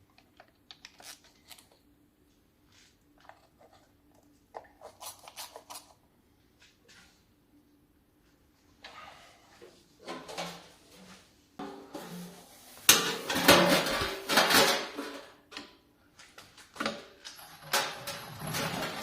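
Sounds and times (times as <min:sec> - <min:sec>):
metal tools clattering: 0:17.2 - 0:19.0.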